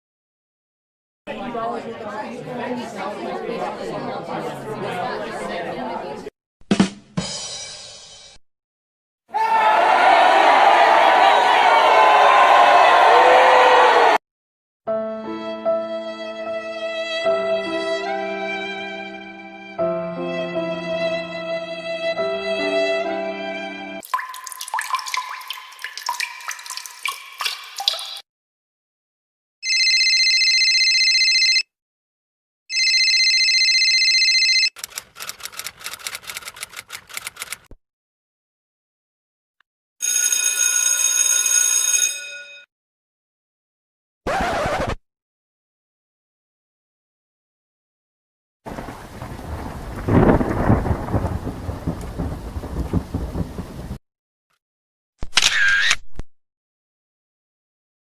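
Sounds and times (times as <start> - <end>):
telephone ringing: 29.6 - 31.7, 32.7 - 34.8, 40.0 - 42.7
rapid irregular clicking: 34.8 - 37.7
steady rain: 48.7 - 54.0
thunder rumbling: 48.7 - 54.0.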